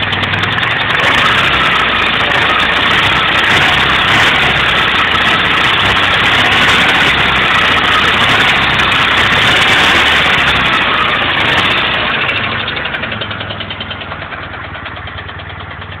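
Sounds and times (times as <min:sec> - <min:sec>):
car engine knocking and idling: 0:00.0 - 0:16.0.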